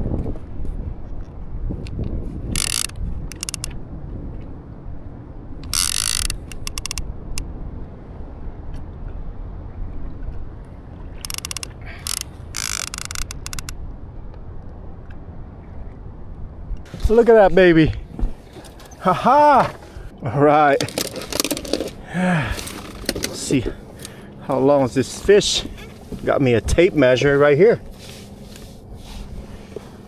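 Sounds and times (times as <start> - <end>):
fishing reel clicking: 1.9 - 3.7, 5.6 - 7.0, 11.2 - 13.7.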